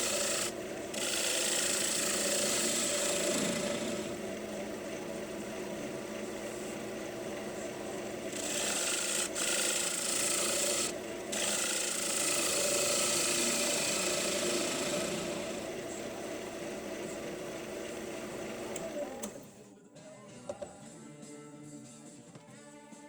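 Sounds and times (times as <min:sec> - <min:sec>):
tool rasping on spinning wood: 0:00.0 - 0:18.8
wood lathe humming: 0:00.0 - 0:19.5.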